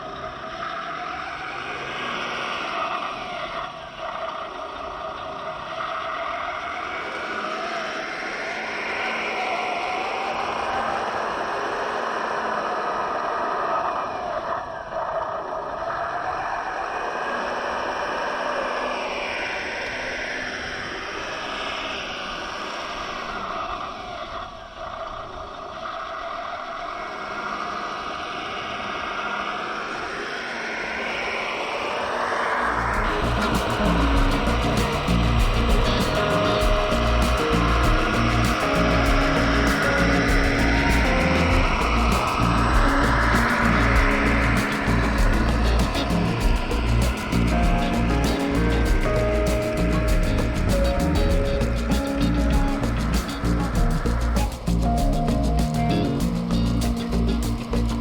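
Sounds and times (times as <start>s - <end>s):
simulated truck engine through speakers: 0.0s - 58.0s
electric motor and gearbox whir: 32.8s - 58.0s.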